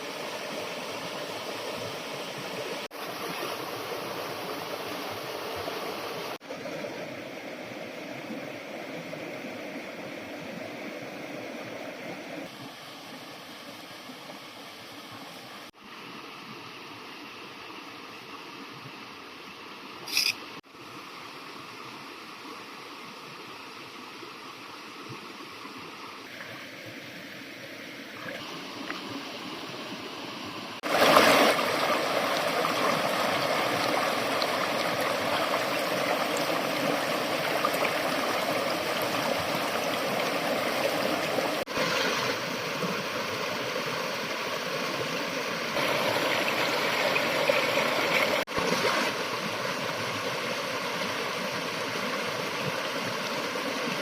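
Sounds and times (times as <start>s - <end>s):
river water rushing over rocks: 28.2s - 54.0s.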